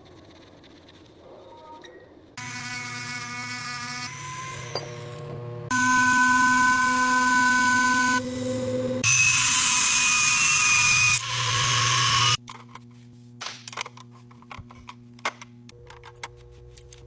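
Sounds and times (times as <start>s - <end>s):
power tool whirring: 2.4s - 12.4s.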